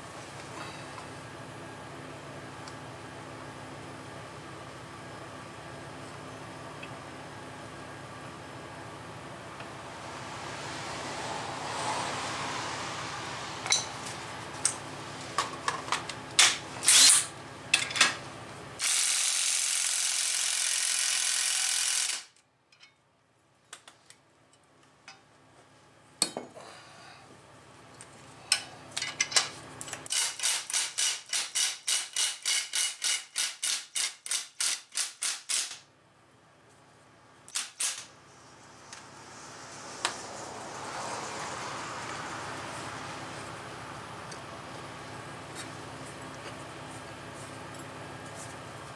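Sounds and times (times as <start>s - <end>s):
steady rushing noise: 9.4s - 15.6s, 38.3s - 44.7s.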